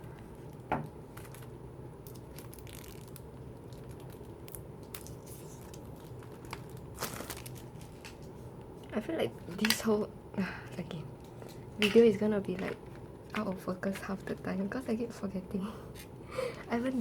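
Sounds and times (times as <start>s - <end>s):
paper and plastic crinkling: 1.0s - 8.4s.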